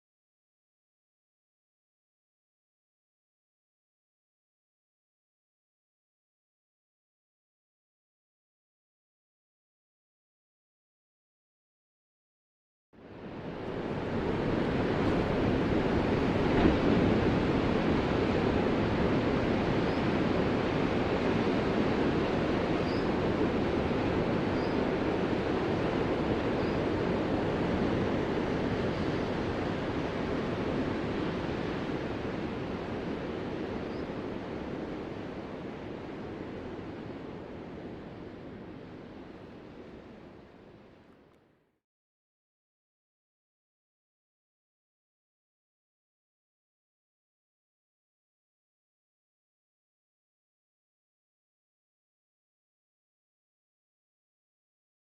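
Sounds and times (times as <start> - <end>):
ocean waves: 13.0 - 41.0.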